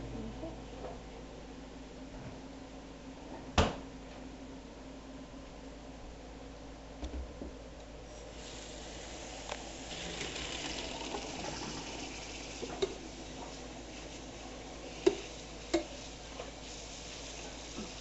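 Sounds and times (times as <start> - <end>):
water splashing in sink: 9.8 - 18.0.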